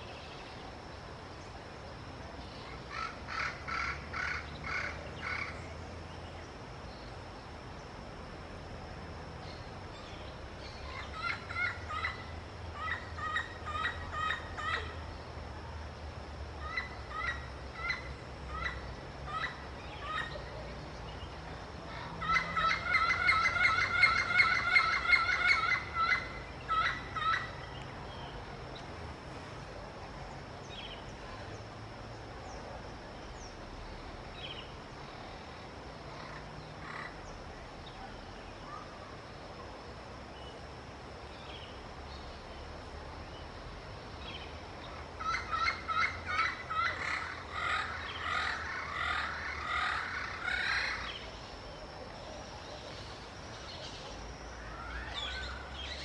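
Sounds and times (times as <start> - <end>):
parrot calling: 21.9 - 27.6.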